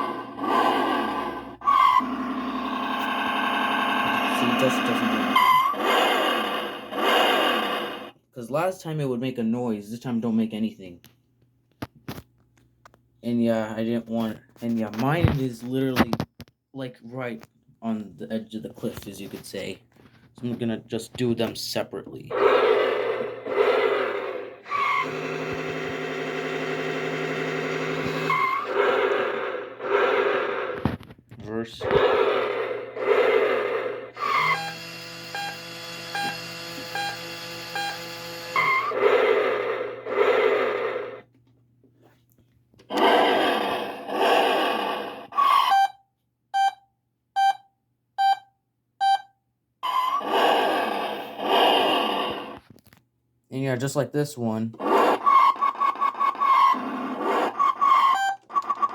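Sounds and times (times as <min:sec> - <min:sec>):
toy car engine sound effect: 0:00.0 - 0:08.2, 0:22.3 - 0:31.0, 0:31.8 - 0:41.2, 0:42.9 - 0:46.0, 0:49.8 - 0:52.6, 0:54.7 - 0:58.9
tire squeal chirp: 0:01.6 - 0:02.1, 0:24.7 - 0:25.1, 0:54.9 - 0:58.9
short electronic beeps: 0:46.6 - 0:49.4.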